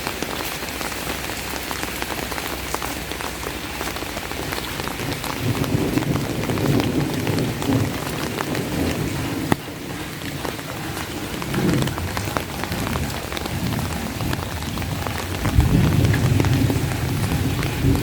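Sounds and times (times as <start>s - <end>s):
rain on an umbrella: 0.0s - 18.0s
low rumble: 4.6s - 18.0s.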